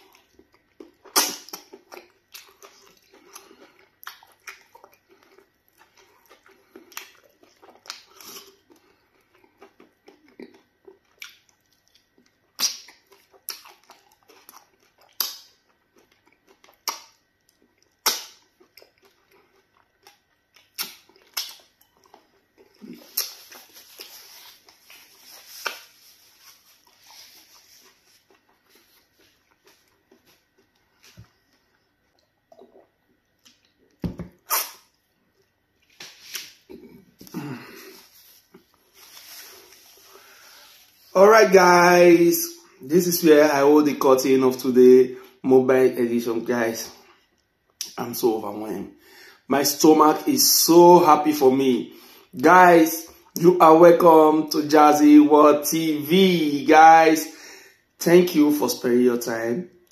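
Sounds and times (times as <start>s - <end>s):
wet chewing and lip-smacking: 0.0s - 36.0s.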